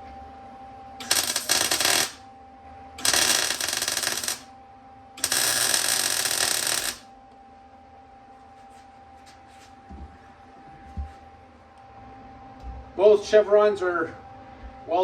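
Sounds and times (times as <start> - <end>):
arc welding: 1.0 - 2.3, 3.0 - 4.5, 5.2 - 7.1.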